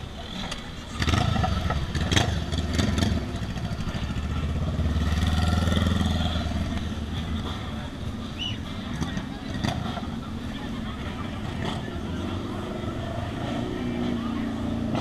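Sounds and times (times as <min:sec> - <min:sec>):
motorcycle engine revving: 0:00.2 - 0:07.4.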